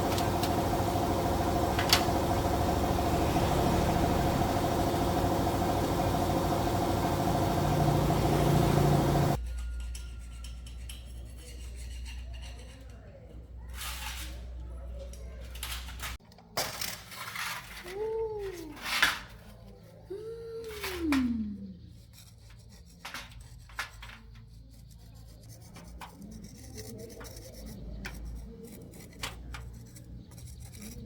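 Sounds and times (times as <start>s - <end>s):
drawn-out rising and falling calls: 0.0s - 9.4s
metal tools clicking and scraping: 9.4s - 13.0s.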